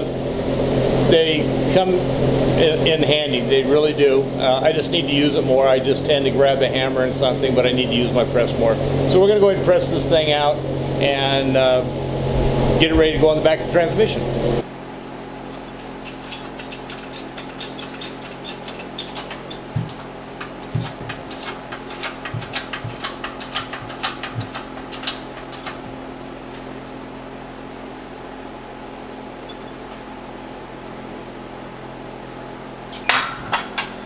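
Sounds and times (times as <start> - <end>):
fan-like hum: 0.0 - 34.0
small metal clicks and knocks: 15.5 - 25.8.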